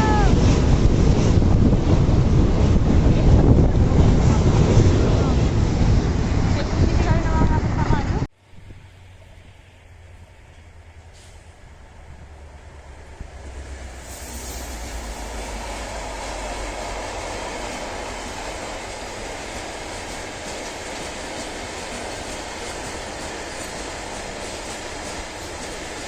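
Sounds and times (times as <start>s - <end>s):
freight train rumbling: 0.0s - 26.0s
wheels clattering on rails: 12.3s - 26.0s.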